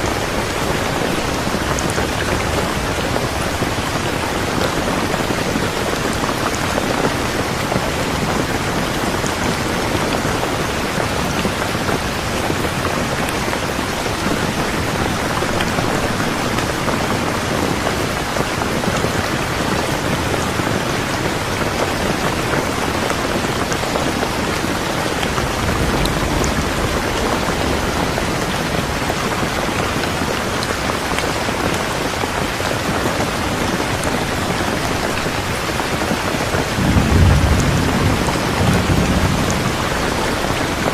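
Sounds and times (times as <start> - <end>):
dense rainfall: 0.0 - 40.9.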